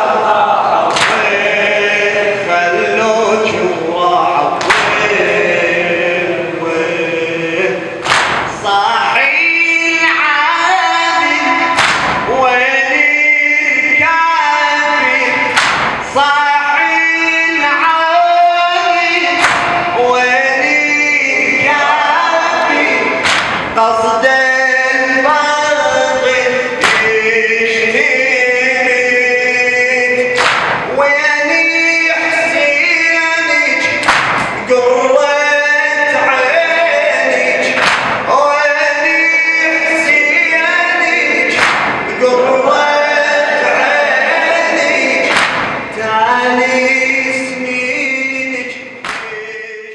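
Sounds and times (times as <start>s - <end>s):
men chanting in unison: 0.0s - 49.9s
sharp percussive strikes: 0.9s - 1.5s, 4.6s - 5.2s, 8.0s - 8.7s, 11.6s - 12.4s, 15.3s - 16.2s, 19.1s - 20.2s, 23.0s - 23.8s, 26.8s - 27.3s, 30.2s - 31.0s, 33.8s - 34.7s, 37.6s - 38.4s, 41.5s - 42.2s, 45.2s - 46.0s, 49.0s - 49.4s.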